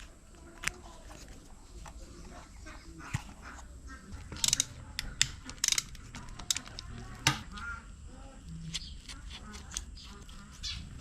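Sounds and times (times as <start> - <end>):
metallic clicks of hand tools: 4.4 - 6.9.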